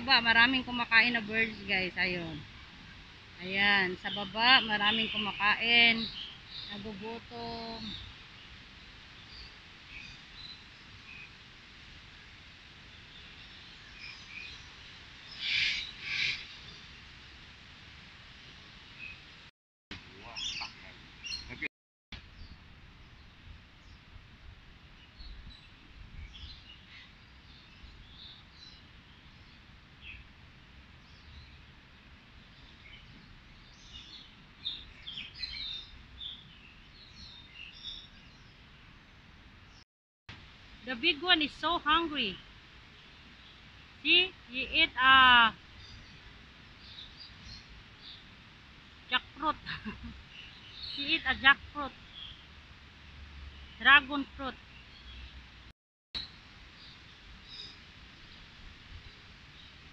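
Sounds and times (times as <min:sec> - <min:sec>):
birds chirping: 0:03.4 - 0:08.1, 0:13.0 - 0:16.9, 0:20.0 - 0:21.7, 0:40.9 - 0:52.6
loud short bird calls: 0:15.3 - 0:16.5.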